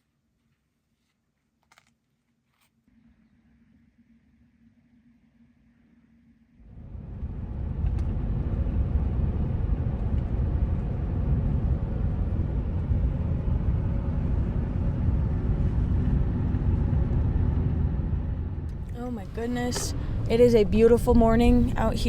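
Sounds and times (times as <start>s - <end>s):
road and engine rumble: 6.7s - 22.0s.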